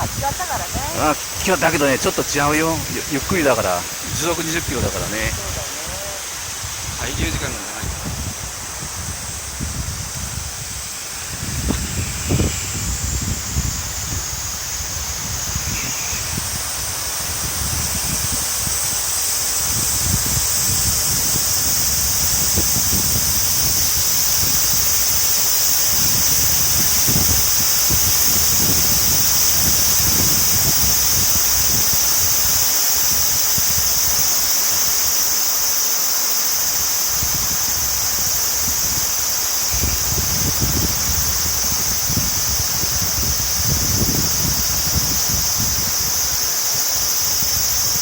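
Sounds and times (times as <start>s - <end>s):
river rushing: 0.0s - 11.4s
wind buffeting microphone: 0.0s - 35.1s, 36.8s - 48.0s.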